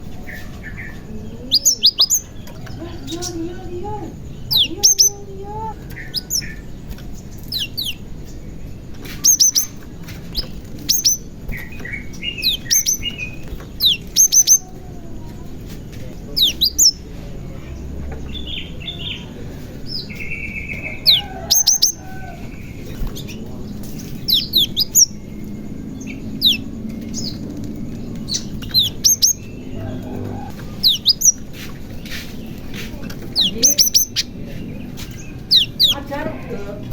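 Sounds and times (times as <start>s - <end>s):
bird calling and singing: 0.0s - 36.9s.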